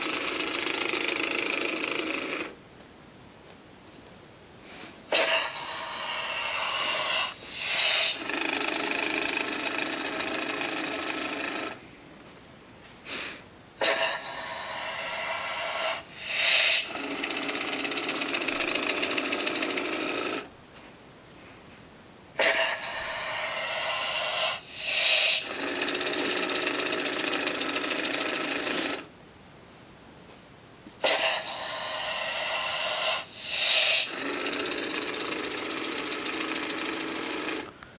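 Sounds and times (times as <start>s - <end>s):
gear motor whirring: 0.0s - 2.6s, 5.4s - 11.8s, 14.2s - 20.5s, 22.8s - 29.1s, 31.4s - 37.8s.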